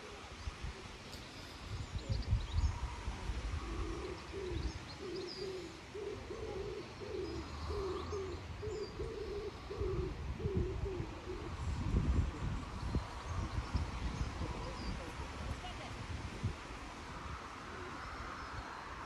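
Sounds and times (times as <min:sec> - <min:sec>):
small birds chirping: 0:00.2 - 0:15.9
pigeon cooing: 0:03.3 - 0:11.8.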